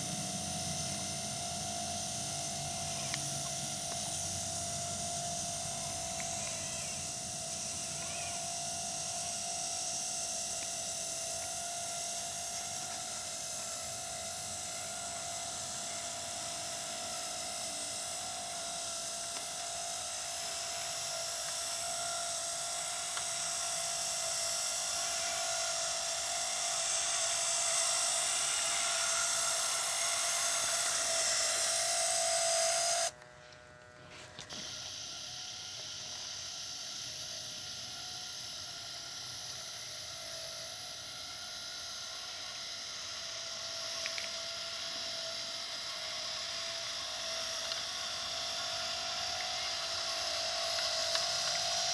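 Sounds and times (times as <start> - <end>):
small electric motors whining: 0.0 - 51.9.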